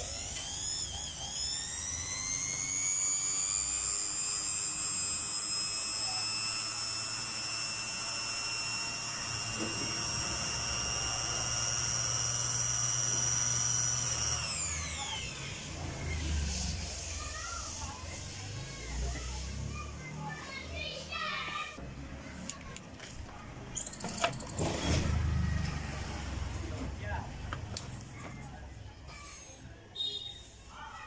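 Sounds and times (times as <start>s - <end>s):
mixer grinder motor whining: 0.0s - 19.2s.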